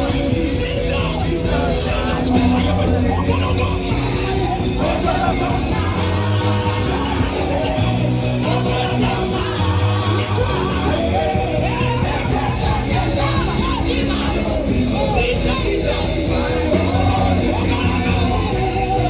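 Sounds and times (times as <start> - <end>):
live worship band playing: 0.0 - 19.0
voices singing: 0.0 - 19.0.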